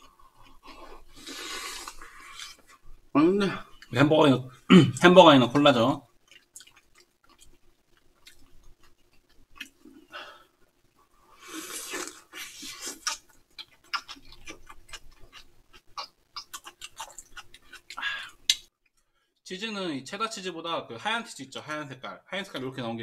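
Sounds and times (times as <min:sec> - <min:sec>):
chewing and mouth smacks: 0:06.2 - 0:09.9, 0:11.9 - 0:19.0.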